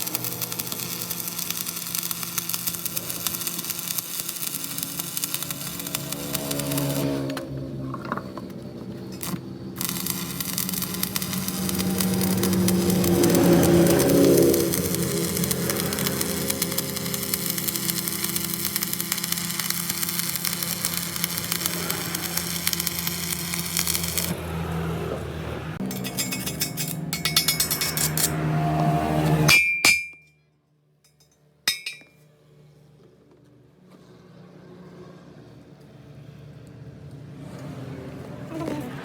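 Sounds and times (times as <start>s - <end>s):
machine running: 0.0s - 29.5s
sharp metallic clinks: 25.8s - 28.4s, 31.1s - 32.2s.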